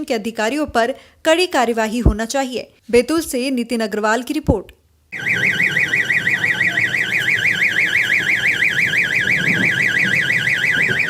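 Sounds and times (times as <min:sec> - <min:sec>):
warbling electronic alarm: 0:05.2 - 0:11.0.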